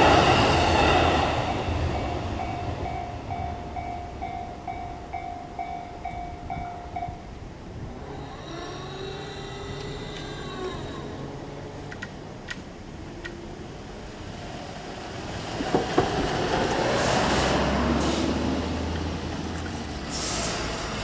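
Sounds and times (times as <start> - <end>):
train wheels rushing: 0.0 - 7.0, 7.6 - 21.0.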